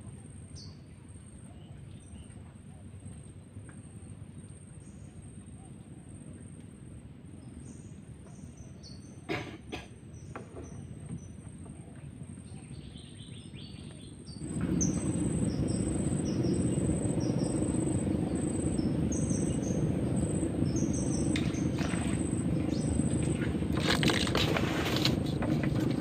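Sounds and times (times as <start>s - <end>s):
bird chirping: 12.8s - 24.4s
thin steady high tone: 14.4s - 23.7s
low rushing noise: 14.4s - 26.0s.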